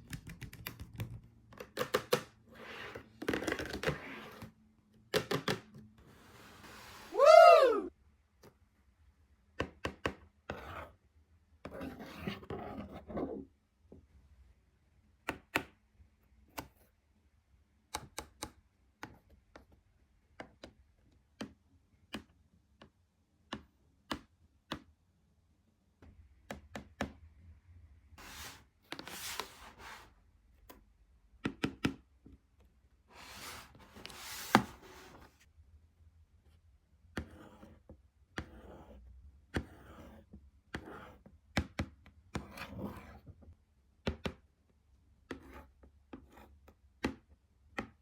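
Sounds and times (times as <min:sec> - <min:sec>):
taps on cardboard and plastic: 0:41.5 - 0:42.1, 0:47.0 - 0:48.0.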